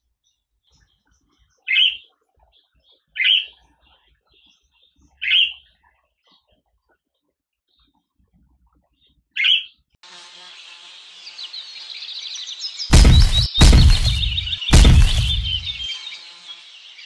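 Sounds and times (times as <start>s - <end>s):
budgerigar chirps: 1.7s - 2.1s, 5.2s - 5.6s, 12.9s - 17.0s.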